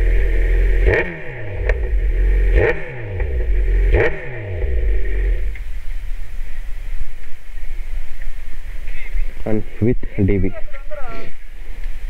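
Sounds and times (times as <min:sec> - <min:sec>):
motorcycle engine revving: 0:00.0 - 0:06.7.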